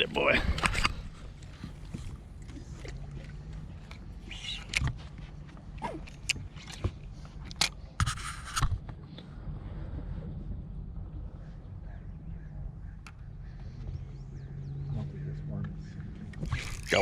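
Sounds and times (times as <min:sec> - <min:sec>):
steady low rumble: 0:08.6 - 0:17.0.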